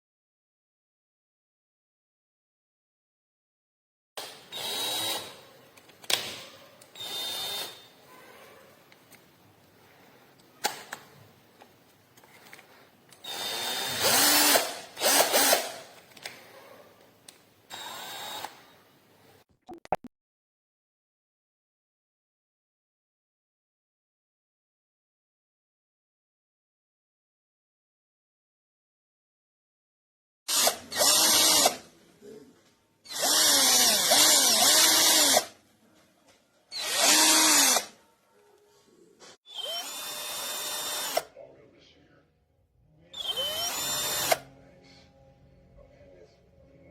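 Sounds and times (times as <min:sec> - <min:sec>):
cordless drill running: 0:04.2 - 0:05.4, 0:07.0 - 0:07.9, 0:13.2 - 0:15.9, 0:17.7 - 0:18.6, 0:30.5 - 0:31.8, 0:33.1 - 0:35.5, 0:36.8 - 0:37.9, 0:39.5 - 0:41.2, 0:43.2 - 0:44.4
drill clicks: 0:13.1 - 0:15.9, 0:43.2 - 0:44.4.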